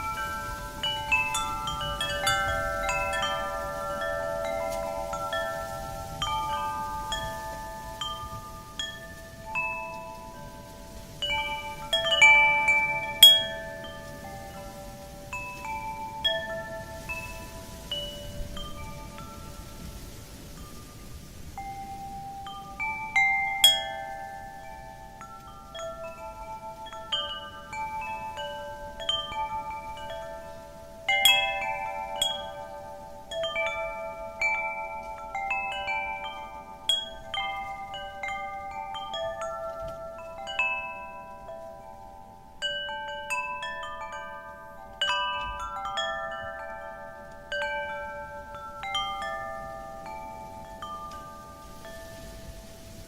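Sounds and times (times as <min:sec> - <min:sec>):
faint steady wind: 0:00.0 - 0:53.0
wind chimes ringing: 0:00.0 - 0:53.0.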